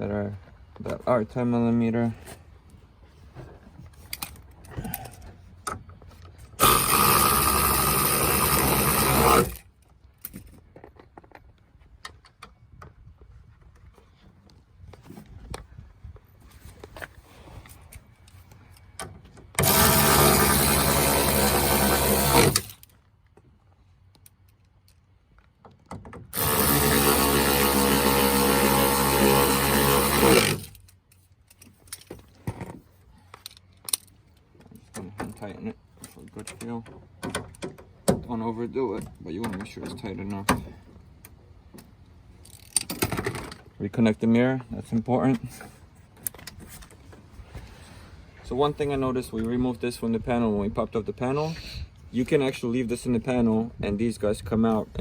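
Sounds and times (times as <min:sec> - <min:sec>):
cordless power driver running: 0:06.6 - 0:09.6, 0:19.6 - 0:22.8, 0:26.4 - 0:30.8
light clicks of parts handled: 0:22.7 - 0:25.9, 0:30.7 - 0:37.6.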